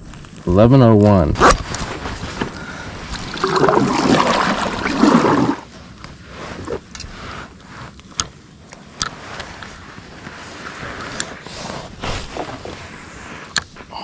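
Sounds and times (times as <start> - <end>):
water splashing and gurgling: 3.0 - 5.7.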